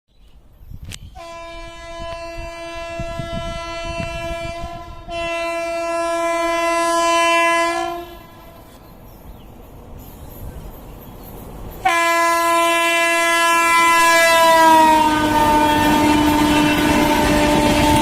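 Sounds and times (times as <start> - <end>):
locomotive horn blasts: 1.2 - 8.8, 11.8 - 18.0.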